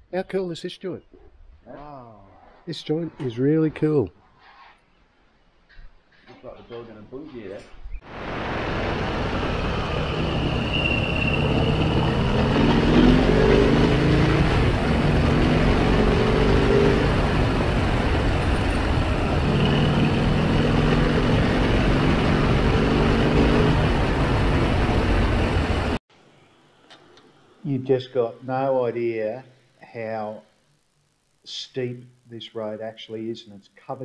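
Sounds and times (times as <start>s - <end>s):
motorcycle engine revving: 8.5s - 26.0s.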